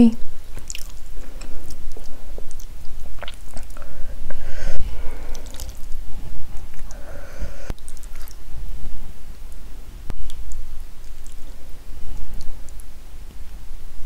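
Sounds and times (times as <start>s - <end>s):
person chewing food: 0.5s - 7.0s, 7.7s - 8.5s, 9.5s - 12.9s
wet mouth clicks and smacks: 0.6s - 3.8s, 7.7s - 8.4s.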